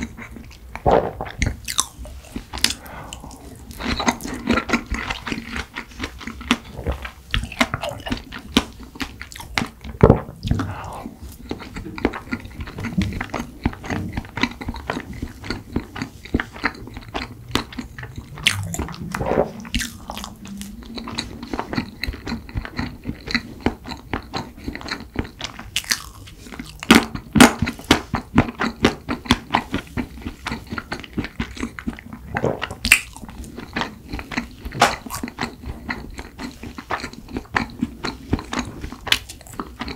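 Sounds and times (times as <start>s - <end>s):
close chewing with wet clicks: 1.4s - 39.9s
crunchy bites: 16.5s - 20.4s, 25.8s - 27.9s, 32.8s - 33.3s.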